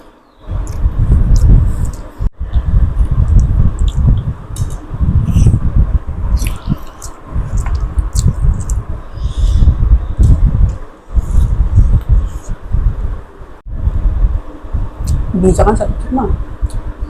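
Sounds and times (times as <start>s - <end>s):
wet chewing and lip smacks: 3.1s - 5.5s, 6.4s - 8.8s.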